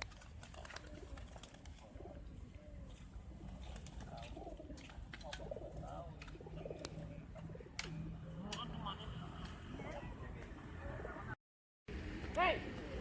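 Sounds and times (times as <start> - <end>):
pigeons cooing: 0.4 - 7.8.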